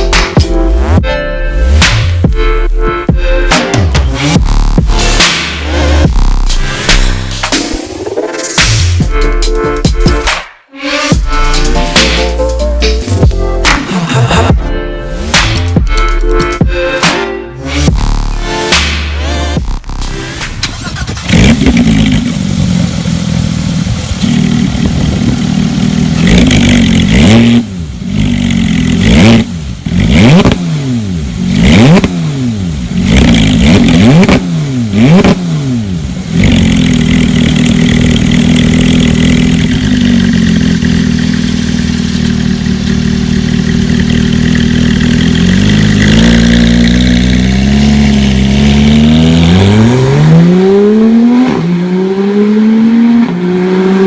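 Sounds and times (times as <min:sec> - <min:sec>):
sports car engine revving: 0:17.6 - 0:54.0.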